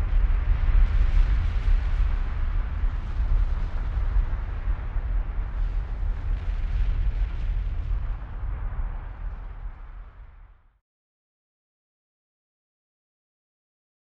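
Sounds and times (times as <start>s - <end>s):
volcano deep rumble: 0.0s - 10.8s.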